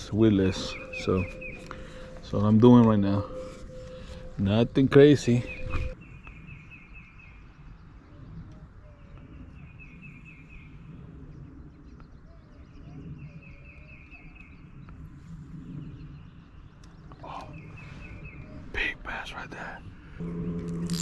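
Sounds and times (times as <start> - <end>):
low outdoor rumble: 0.0 - 6.0, 14.5 - 21.0
songbird trilling: 0.0 - 7.4.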